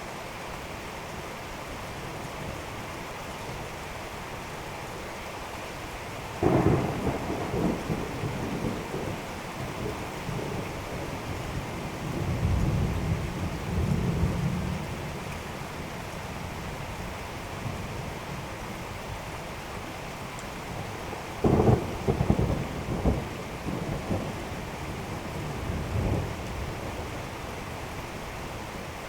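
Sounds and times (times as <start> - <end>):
steady rain: 0.0 - 29.0
rolling thunder: 6.4 - 14.8, 21.4 - 27.3.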